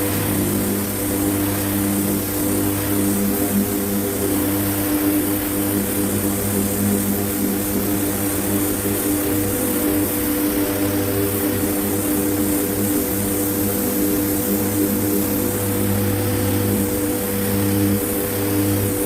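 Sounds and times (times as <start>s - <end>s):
machine drone: 0.0s - 5.6s.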